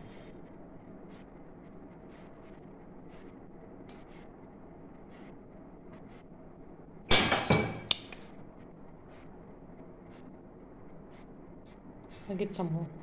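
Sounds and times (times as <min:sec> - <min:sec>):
kitchenware clattering: 0:07.1 - 0:07.9.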